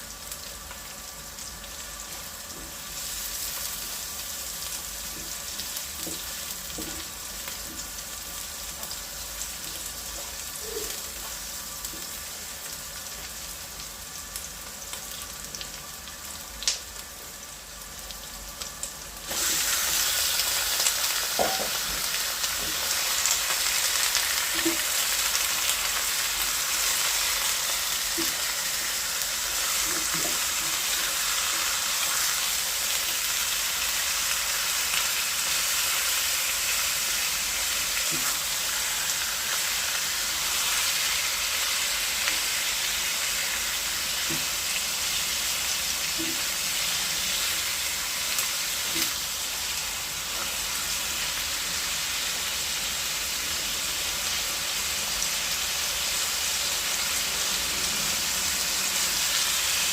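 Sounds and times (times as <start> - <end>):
food sizzling in a hot pan: 0.0 - 59.9.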